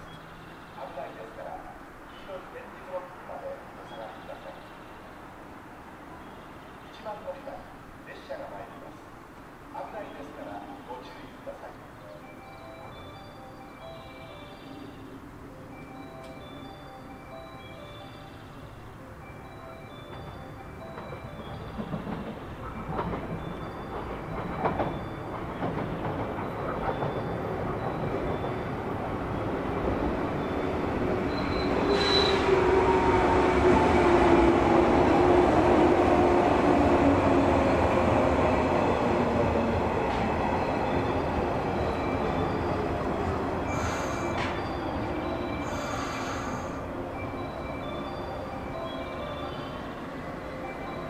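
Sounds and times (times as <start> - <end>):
train wheels clicking over rails: 20.0 - 47.0
train brakes whining: 30.0 - 34.8, 41.7 - 51.0.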